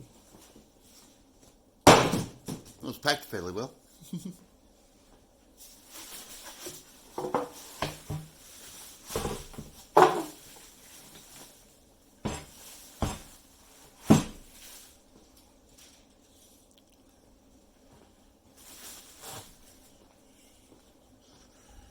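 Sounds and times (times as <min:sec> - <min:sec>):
parts knocking and clattering: 0:09.1 - 0:10.4.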